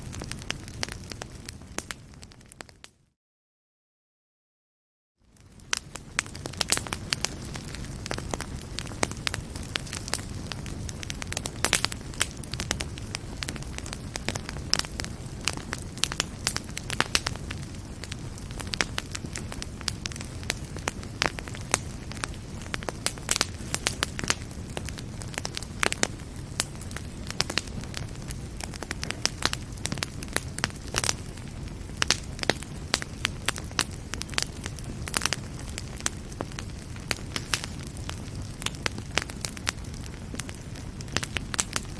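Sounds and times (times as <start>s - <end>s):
fire crackling and popping: 0.0s - 2.9s, 5.2s - 41.9s
low rumble of flames: 0.0s - 2.9s, 5.2s - 41.9s.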